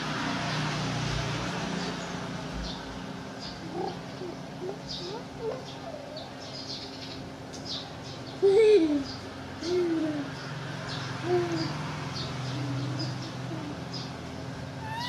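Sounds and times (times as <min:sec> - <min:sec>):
baby monkey squeaking: 0:14.8 - 0:15.0
monkey call: 0:14.8 - 0:15.0.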